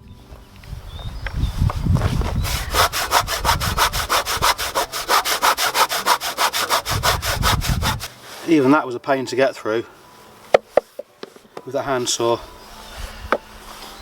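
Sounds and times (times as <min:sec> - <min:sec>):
hand saw cutting wood: 0:02.3 - 0:08.1.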